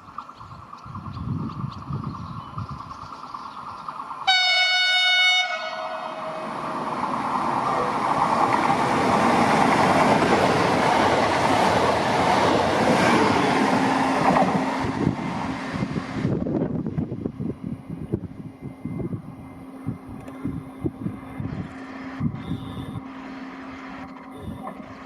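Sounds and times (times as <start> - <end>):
train passing at speed: 0.0 - 25.0
train horn blast: 4.3 - 6.6, 22.4 - 23.2, 24.3 - 24.8.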